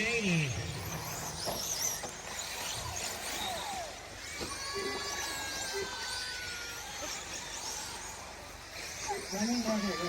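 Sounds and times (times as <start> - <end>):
steady high whine: 0.0 - 5.5
rc truck motors whining: 0.0 - 10.0.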